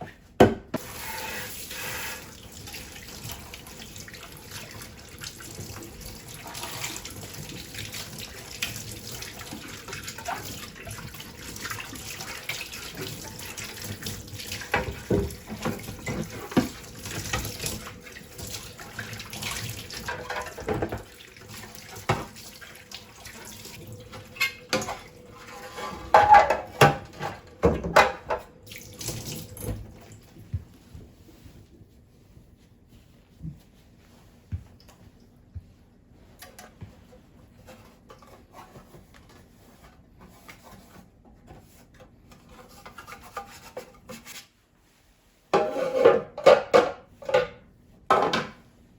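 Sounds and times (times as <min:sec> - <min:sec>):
tap water running into sink: 0:00.8 - 0:25.2, 0:25.8 - 0:30.2
dishes clattering: 0:24.2 - 0:28.5, 0:45.6 - 0:48.6.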